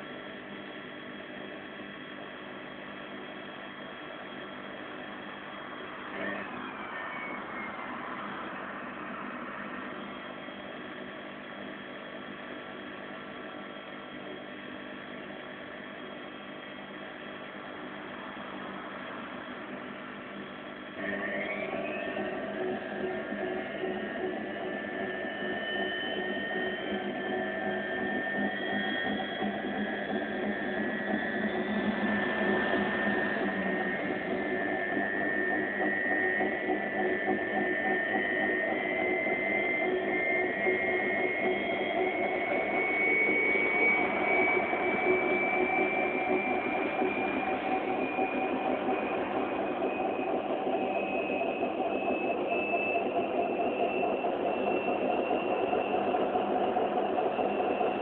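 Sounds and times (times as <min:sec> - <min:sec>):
vacuum cleaner motor whining: 0:21.0 - 0:58.0.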